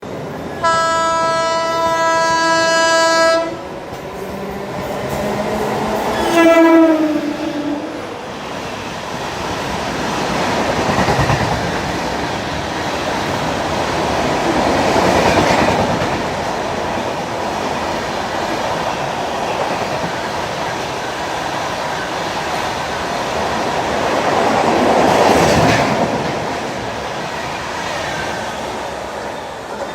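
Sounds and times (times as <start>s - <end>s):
train horn blast: 0.6s - 3.6s, 6.2s - 8.0s
train wheels clattering on rails: 8.4s - 29.9s.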